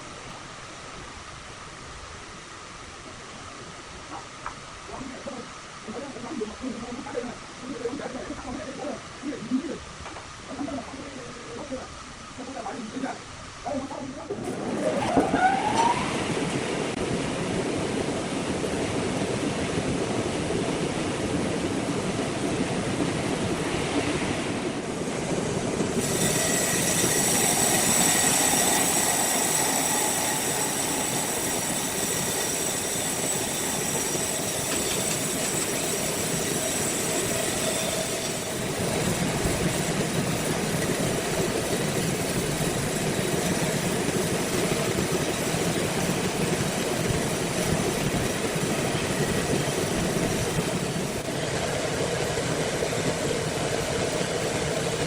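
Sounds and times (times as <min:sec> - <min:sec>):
faint high whine: 0:25.8 - 0:55.0.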